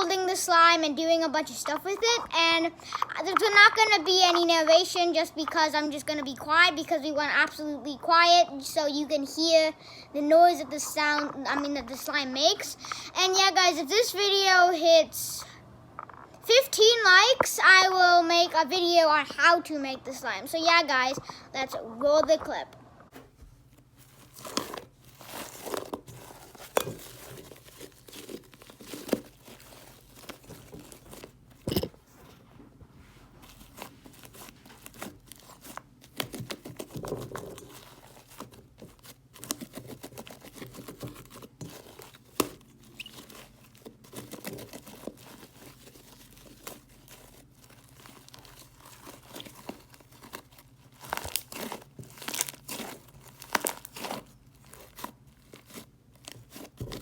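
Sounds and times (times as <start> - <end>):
slime crackling and squelching: 0.0 - 9.3, 23.8 - 31.7, 33.3 - 57.0.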